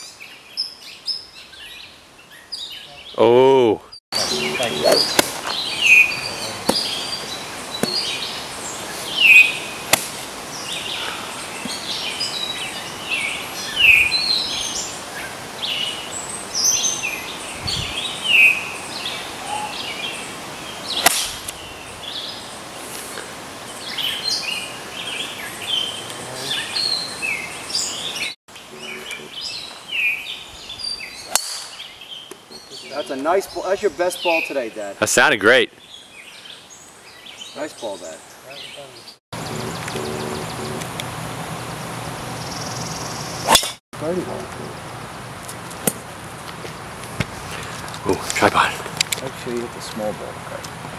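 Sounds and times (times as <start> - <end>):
outdoor background noise: 0.0 - 50.9
songbirds chirping: 0.0 - 50.9
sharp crack: 4.8 - 5.6, 9.9 - 10.2, 20.9 - 21.6, 31.3 - 31.8, 43.4 - 43.8.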